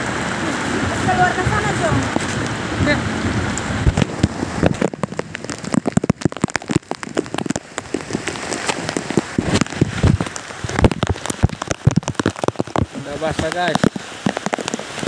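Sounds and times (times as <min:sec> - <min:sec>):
heavy rain on plastic tarp: 0:00.0 - 0:15.0.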